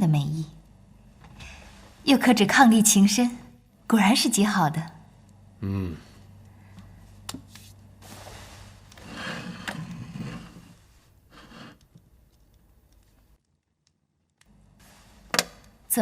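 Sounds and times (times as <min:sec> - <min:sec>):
rustling and scraping handling: 0:07.1 - 0:13.4.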